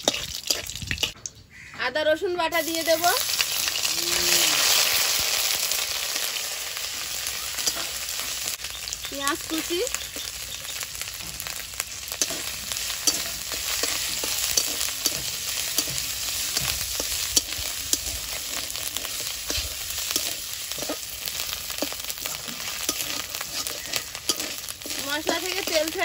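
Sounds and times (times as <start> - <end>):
metal spatula scraping pan: 0.0 - 1.2, 7.5 - 8.3, 12.1 - 26.0
onion sizzling in hot oil: 0.0 - 1.2, 2.5 - 26.0.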